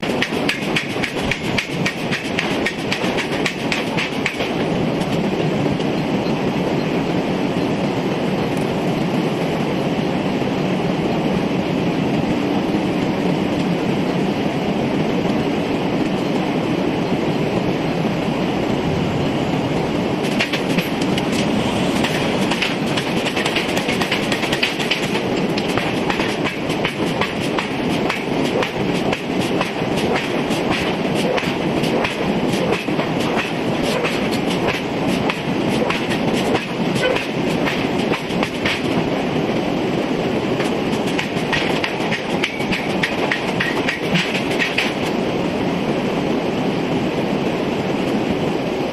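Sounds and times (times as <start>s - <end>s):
rapid metallic clanking: 20.2s - 39.0s, 40.6s - 45.1s.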